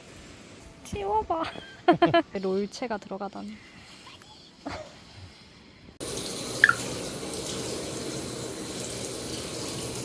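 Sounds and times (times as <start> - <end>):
water running from tap: 6.0 - 10.0.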